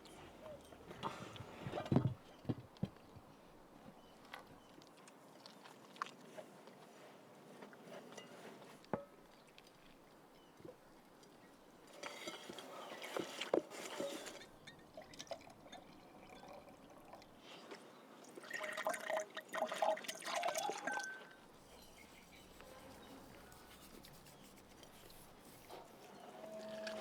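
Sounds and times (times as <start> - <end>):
water splashing and trickling: 9.3 - 27.0.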